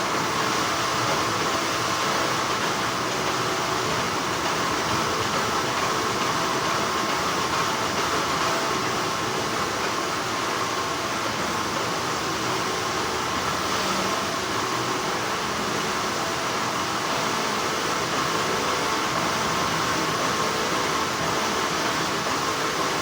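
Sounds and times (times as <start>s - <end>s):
factory machinery hum: 0.0s - 23.0s.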